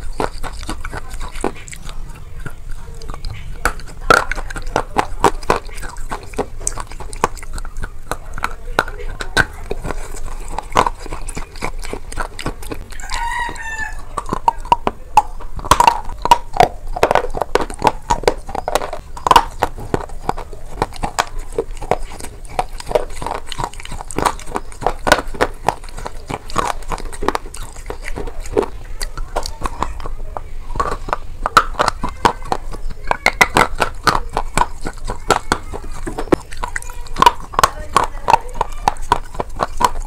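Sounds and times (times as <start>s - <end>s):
crunchy food chewing: 0.0s - 40.0s
animal call: 9.4s - 14.8s.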